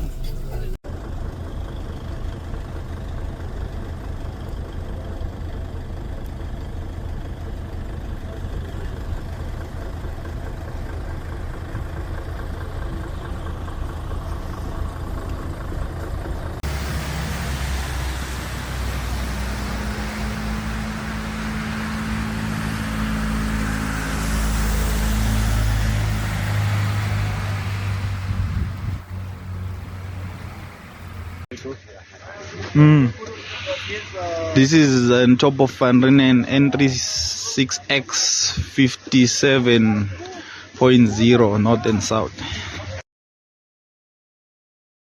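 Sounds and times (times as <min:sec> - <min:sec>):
vehicle engine rumbling: 0:00.0 - 0:43.0
even hiss: 0:32.1 - 0:35.0.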